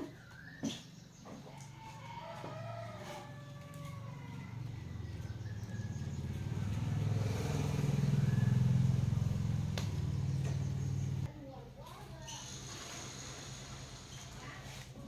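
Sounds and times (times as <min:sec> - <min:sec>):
engine running at low speed: 0:04.4 - 0:11.3.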